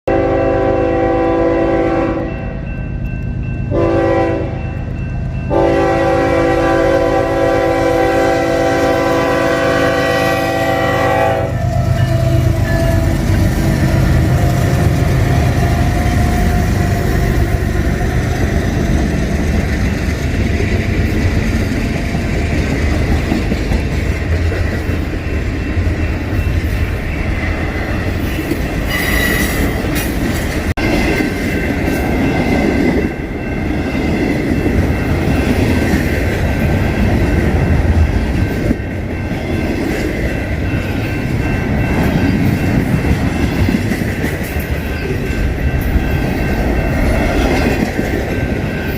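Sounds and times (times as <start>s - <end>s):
train wheels rumbling on rail: 0.1s - 48.9s
high wheel squeal: 28.9s - 29.8s.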